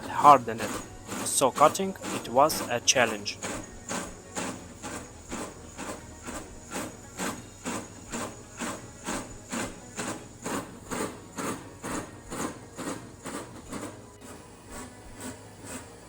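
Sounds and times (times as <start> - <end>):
boring bar scraping knock: 0.0 - 16.0
steady high whine: 0.0 - 16.0.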